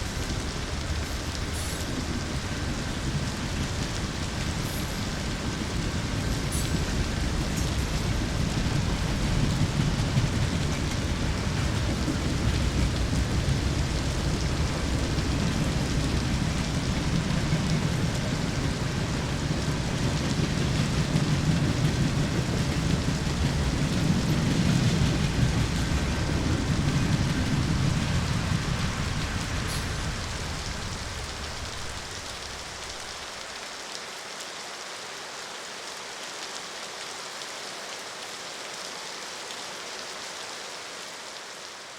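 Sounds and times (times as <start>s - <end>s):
low rumble: 0.0s - 33.2s
steady rain falling: 0.0s - 41.9s.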